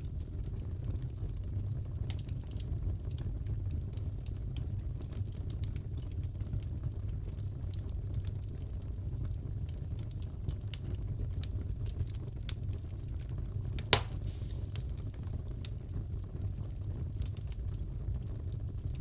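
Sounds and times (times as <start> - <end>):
fire crackling: 0.1 - 19.0
loud fire pop: 13.8 - 15.2.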